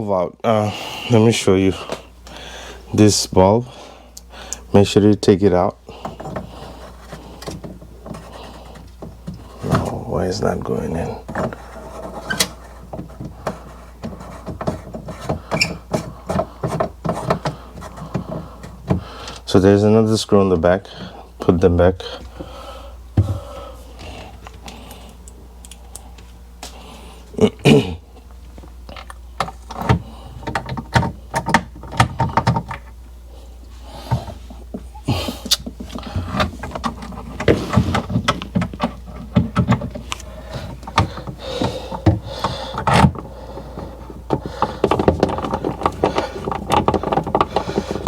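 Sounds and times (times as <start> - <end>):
plastic parts knocking: 6.0 - 19.5, 29.0 - 32.9, 35.5 - 48.0.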